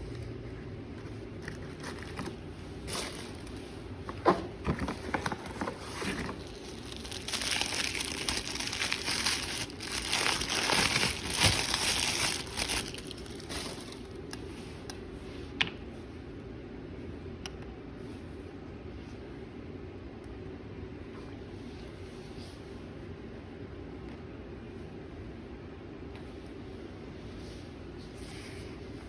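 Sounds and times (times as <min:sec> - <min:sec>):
packaging crinkling: 0:01.4 - 0:03.8, 0:04.6 - 0:14.4.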